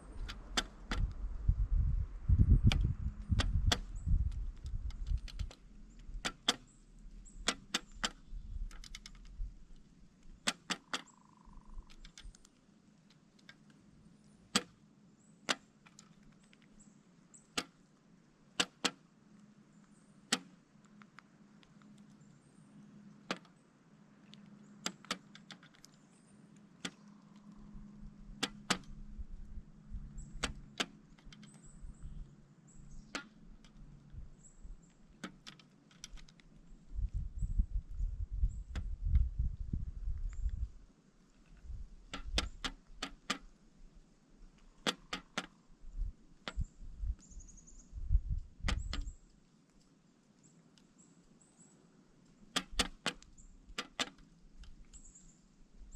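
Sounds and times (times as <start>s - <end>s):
woodpecker pecking: 2.8s - 13.8s, 44.6s - 45.6s.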